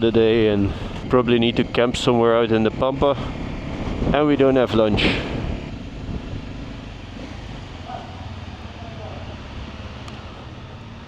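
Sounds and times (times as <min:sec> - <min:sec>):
vehicle engine rumble: 0:00.0 - 0:11.0
faint voices: 0:07.9 - 0:10.6.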